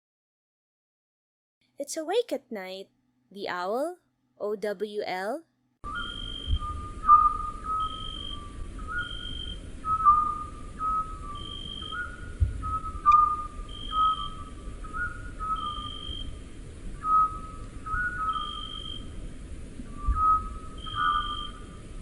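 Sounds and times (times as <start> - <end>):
owl whistled call: 5.9 - 16.4, 17.0 - 19.1, 19.9 - 21.8.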